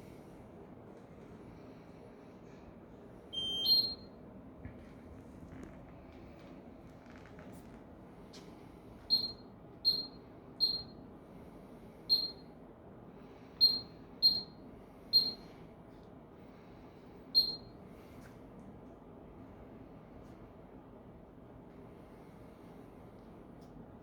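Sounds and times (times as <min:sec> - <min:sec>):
faint steady hum: 0:00.0 - 0:24.0
short high electronic beeps: 0:15.2 - 0:15.4.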